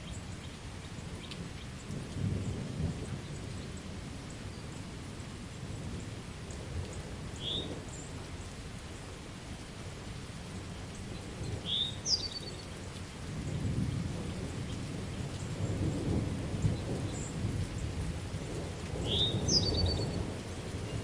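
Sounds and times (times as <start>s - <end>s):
steady rain: 0.0s - 21.0s
bird chirp with trill: 11.6s - 12.6s, 19.1s - 20.0s
rolling thunder: 13.4s - 21.0s.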